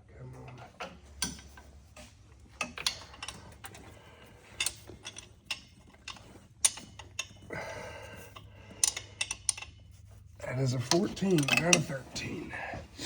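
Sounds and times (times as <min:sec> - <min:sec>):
wrench clicking against bolts: 0:02.4 - 0:12.3
metal tool scrape: 0:08.2 - 0:13.0.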